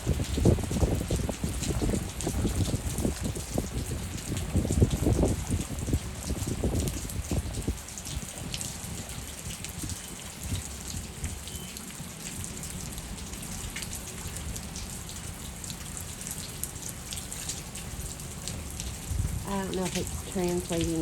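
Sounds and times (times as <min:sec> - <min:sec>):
gusty wind rumble: 0:00.0 - 0:11.3, 0:18.6 - 0:21.0
heavy rain with drop taps: 0:00.0 - 0:21.0.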